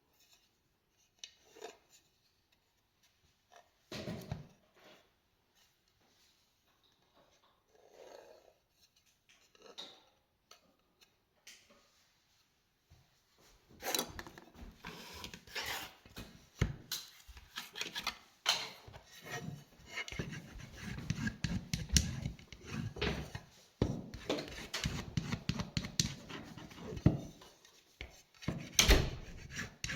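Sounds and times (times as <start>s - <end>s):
rubbing and scraping strokes: 18.9s - 29.9s.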